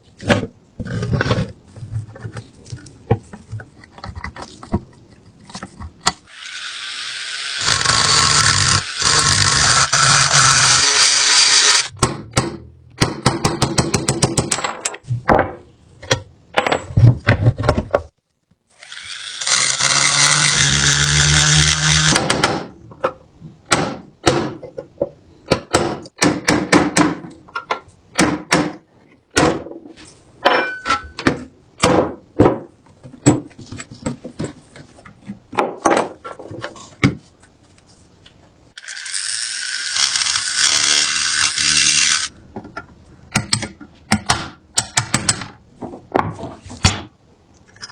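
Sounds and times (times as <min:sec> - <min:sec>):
power tool running: 0:06.3 - 0:11.9.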